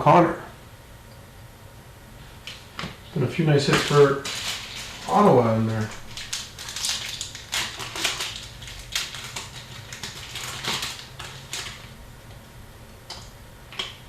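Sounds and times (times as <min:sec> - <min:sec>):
cards and foil packs handled: 0:03.6 - 0:12.0.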